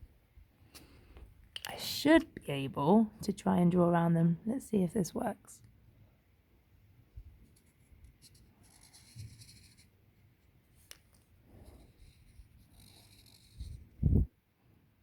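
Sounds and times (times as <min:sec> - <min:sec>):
pen scratching on paper: 0:07.5 - 0:10.0, 0:11.5 - 0:14.0.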